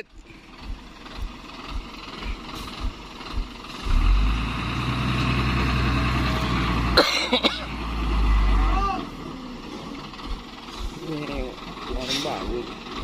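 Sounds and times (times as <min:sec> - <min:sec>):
soft low thuds: 0:00.0 - 0:04.0
truck diesel engine running: 0:00.0 - 0:13.0.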